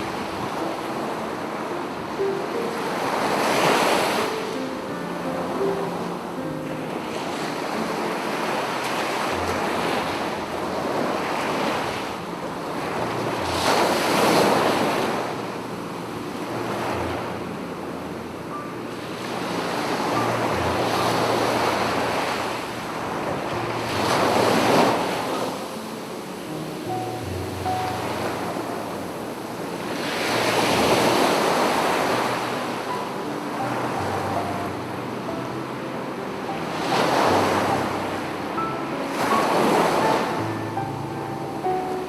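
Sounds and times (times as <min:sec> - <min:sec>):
sea waves breaking on beach: 0:00.0 - 0:42.0.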